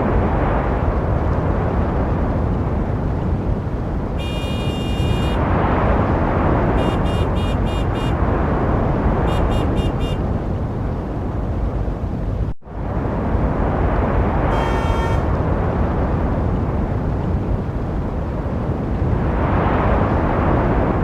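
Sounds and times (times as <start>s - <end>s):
street traffic noise: 0.0s - 21.0s
car horn honking: 4.2s - 5.4s, 6.8s - 8.2s, 9.2s - 10.2s, 14.5s - 15.3s.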